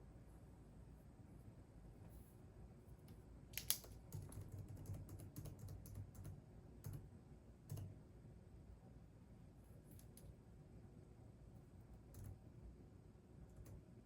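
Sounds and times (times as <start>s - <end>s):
faint keyboard typing: 3.0s - 8.0s, 11.9s - 12.5s, 13.5s - 14.0s.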